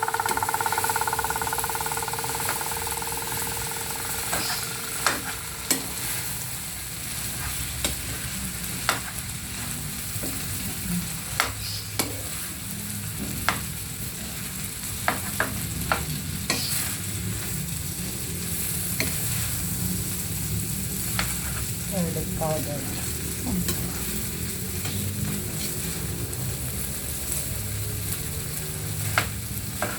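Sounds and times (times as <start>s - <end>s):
spatula knocking against pan: 0.0s - 6.1s
food sizzling in a pan: 0.0s - 29.9s.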